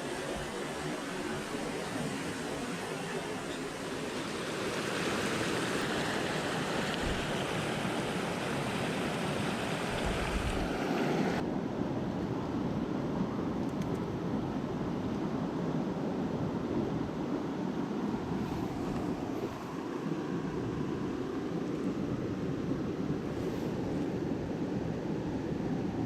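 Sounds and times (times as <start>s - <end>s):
stream water rushing: 0.0s - 11.4s.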